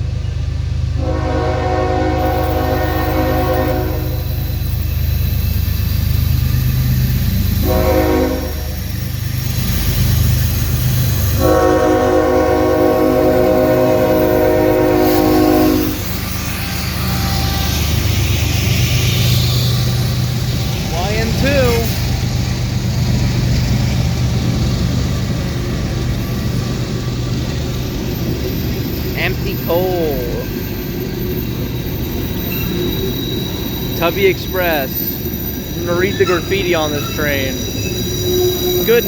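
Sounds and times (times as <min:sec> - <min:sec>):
locomotive engines rumbling: 0:00.0 - 0:39.0
locomotive air horn blasts: 0:01.0 - 0:04.4, 0:07.6 - 0:08.8, 0:11.4 - 0:16.2.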